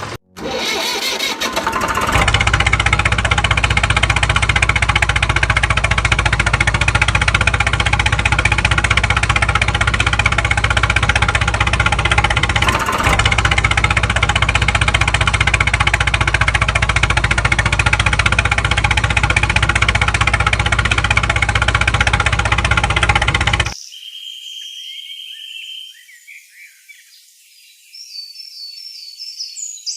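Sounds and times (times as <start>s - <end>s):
engine idling with knocking pulse: 0.0s - 23.8s.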